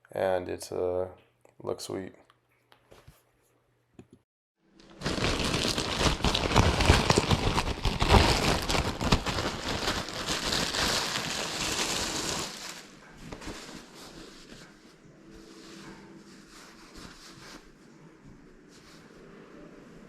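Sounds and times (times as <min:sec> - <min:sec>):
material rustling and crinkling: 0:04.8 - 0:19.3.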